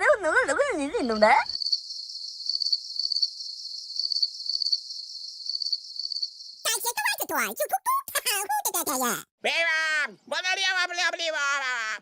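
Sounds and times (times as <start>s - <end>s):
crickets chirping: 0.9s - 6.7s.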